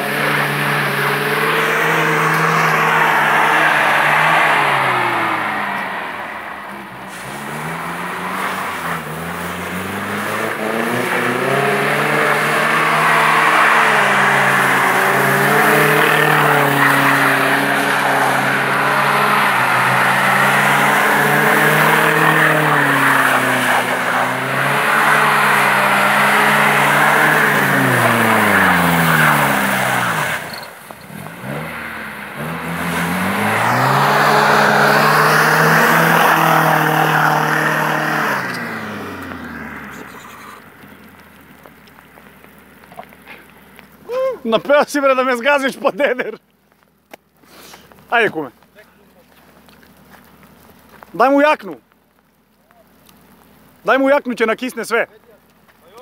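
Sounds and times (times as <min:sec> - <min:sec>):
car engine at high revs: 0:00.0 - 0:44.0
tyres hissing through slush: 0:00.1 - 0:41.4, 0:47.4 - 0:48.4.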